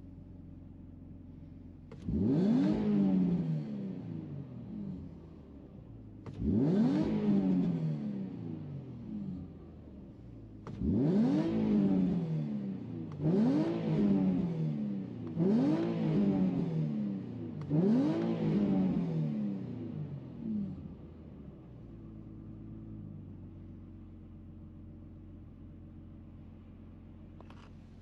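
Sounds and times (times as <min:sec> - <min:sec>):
car engine revving: 0:01.9 - 0:03.6, 0:06.2 - 0:07.8, 0:10.6 - 0:12.2, 0:13.0 - 0:20.1.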